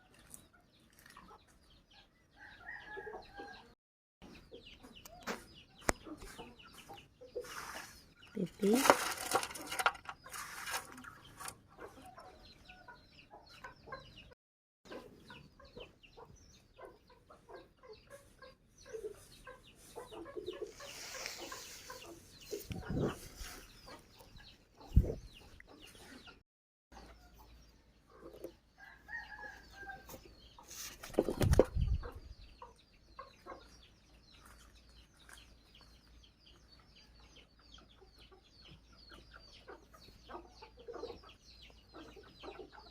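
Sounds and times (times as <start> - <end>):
knocks and handling noises: 8.5 - 11.6.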